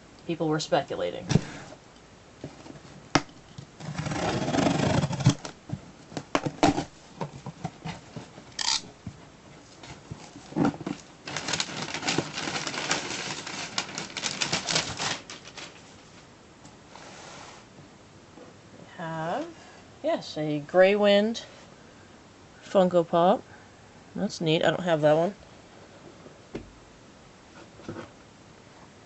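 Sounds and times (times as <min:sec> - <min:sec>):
cardboard box rustling and crinkling: 0:03.8 - 0:16.2
crackling: 0:10.5 - 0:16.3.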